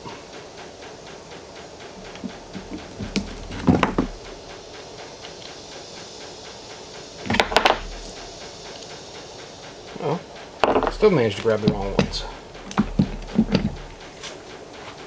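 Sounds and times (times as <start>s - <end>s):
tools clicking and knocking: 2.0s - 4.6s, 7.2s - 8.4s, 10.6s - 14.1s.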